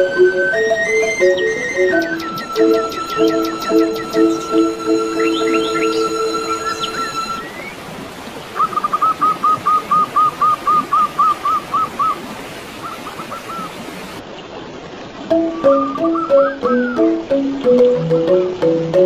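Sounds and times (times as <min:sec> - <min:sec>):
mallet music: 0:00.0 - 0:07.4, 0:15.3 - 0:19.0
bird calling: 0:00.0 - 0:07.8, 0:08.6 - 0:12.2, 0:12.8 - 0:13.8, 0:15.5 - 0:17.2
running water: 0:00.0 - 0:19.0.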